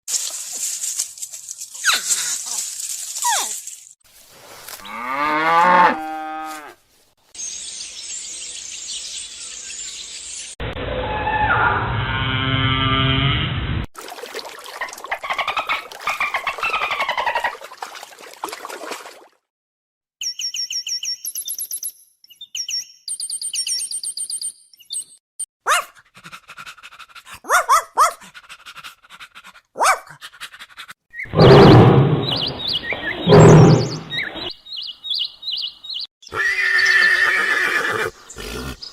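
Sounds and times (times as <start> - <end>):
animal calls: 31.2 - 34.5.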